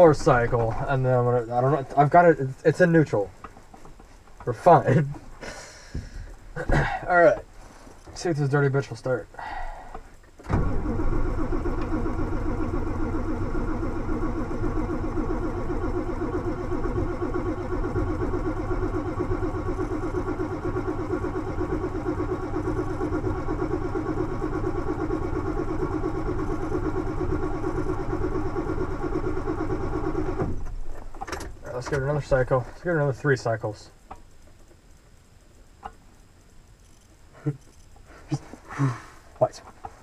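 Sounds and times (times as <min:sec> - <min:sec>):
diesel engine cranking: 0:07.2 - 0:32.6.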